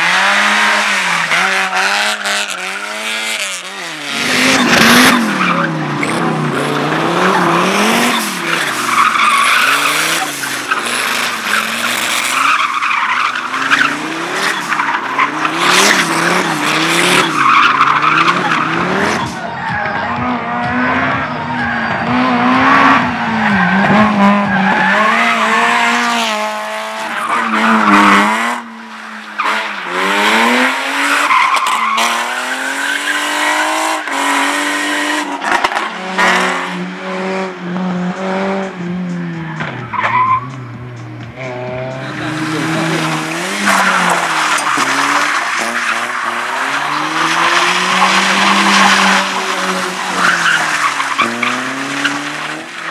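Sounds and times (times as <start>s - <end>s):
car engine revving: 0.0s - 52.9s
tyres squealing: 3.8s - 19.9s, 42.0s - 52.9s.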